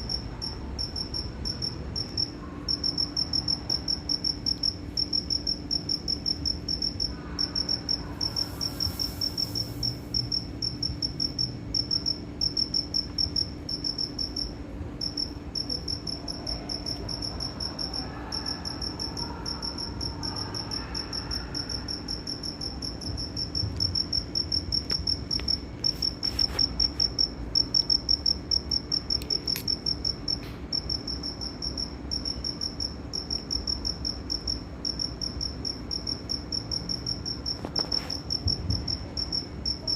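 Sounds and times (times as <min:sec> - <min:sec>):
cricket chirping: 0:00.0 - 0:39.9
faint low hum: 0:00.0 - 0:39.9.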